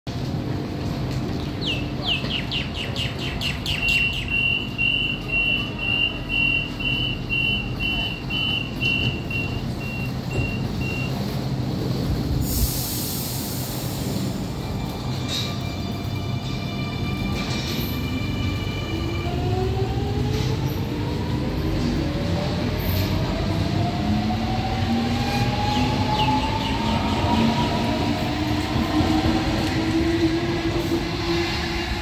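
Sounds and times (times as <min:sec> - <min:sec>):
electric train humming: 0:00.1 - 0:32.0
repeated high beep: 0:03.9 - 0:11.2.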